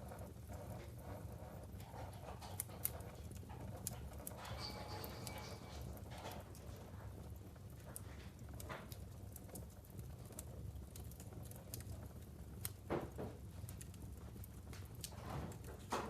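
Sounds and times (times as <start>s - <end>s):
low steady fire rumble: 0.0s - 16.0s
wood fire crackling: 0.0s - 16.0s
loud pop of burning wood: 12.6s - 14.0s.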